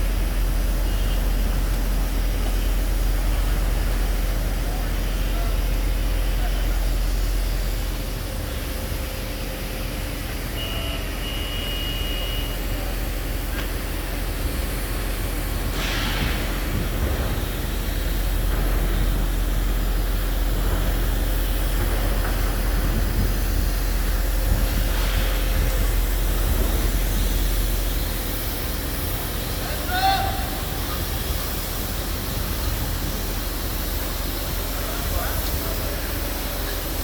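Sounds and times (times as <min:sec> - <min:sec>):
diesel machinery rumbling: 0:00.0 - 0:37.0
high beep: 0:10.5 - 0:12.6
short hiss: 0:15.6 - 0:16.7.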